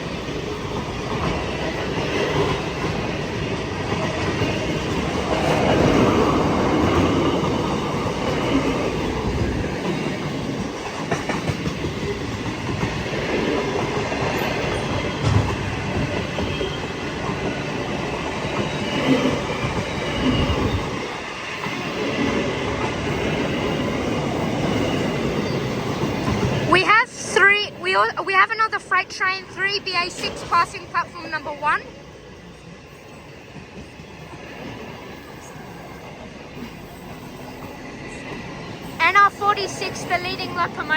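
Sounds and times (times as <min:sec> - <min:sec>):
train wheels rumbling and clattering: 0:00.0 - 0:40.9.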